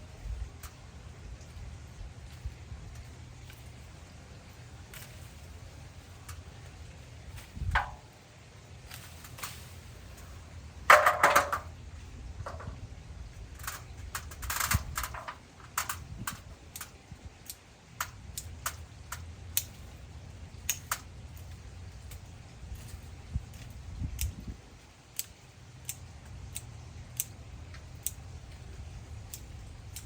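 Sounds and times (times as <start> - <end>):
branches and leaves crackling: 0.0 - 30.0
pruning shears clicking: 13.5 - 24.4, 25.1 - 30.0.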